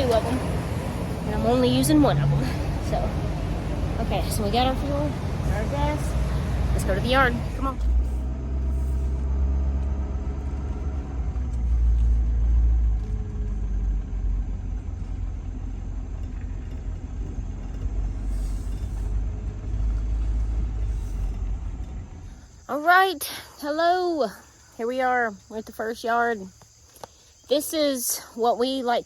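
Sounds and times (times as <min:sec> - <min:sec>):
pickup truck engine driving: 0:00.0 - 0:23.0.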